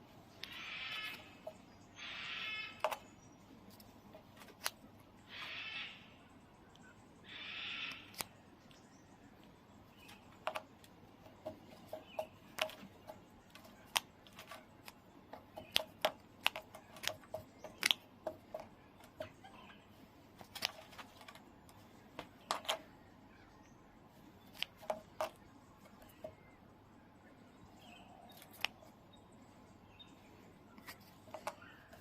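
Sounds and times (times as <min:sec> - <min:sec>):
kookaburra sharp clicks: 0:07.3 - 0:08.4, 0:15.6 - 0:18.0.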